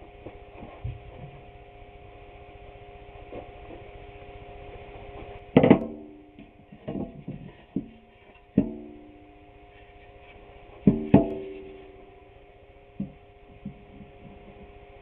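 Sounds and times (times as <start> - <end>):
sharp knocks on ringing object: 10.9 - 11.6.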